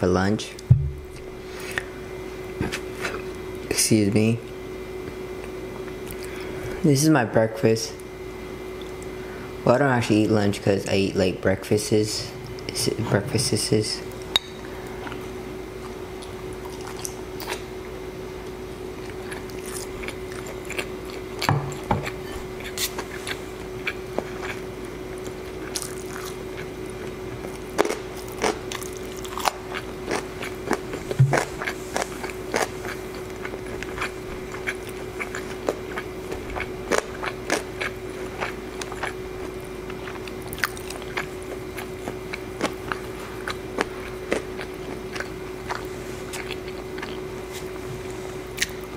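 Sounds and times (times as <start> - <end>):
steady hum: 0.0 - 48.9
low thumps: 0.7 - 1.2
chewing and wet mouth sounds: 5.4 - 6.5, 14.1 - 17.7, 18.4 - 48.9.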